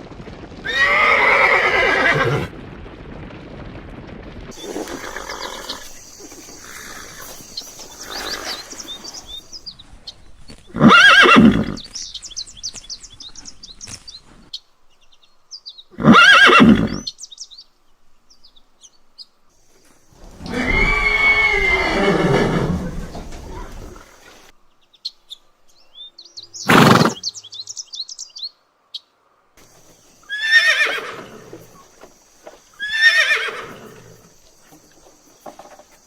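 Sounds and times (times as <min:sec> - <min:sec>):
horse whinnying: 0:00.6 - 0:02.5, 0:04.6 - 0:09.6, 0:10.7 - 0:11.8, 0:16.0 - 0:17.1, 0:20.2 - 0:24.5, 0:26.7 - 0:27.2, 0:30.2 - 0:32.0, 0:32.7 - 0:35.0.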